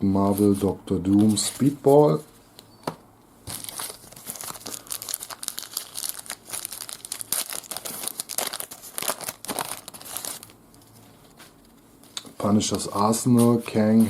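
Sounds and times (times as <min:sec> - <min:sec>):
wrapper tearing and crinkling: 0:03.5 - 0:10.6.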